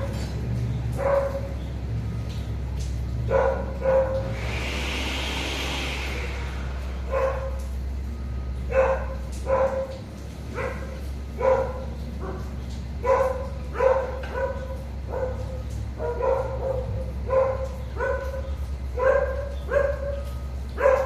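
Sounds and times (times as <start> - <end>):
dog barking: 0.9 - 1.6, 3.3 - 4.3, 7.1 - 7.7, 8.7 - 21.0
steady low hum: 1.6 - 13.8.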